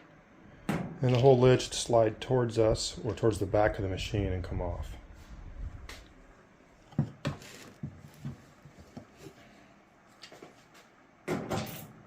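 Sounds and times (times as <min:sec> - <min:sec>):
rustling scrape: 0:07.4 - 0:09.6.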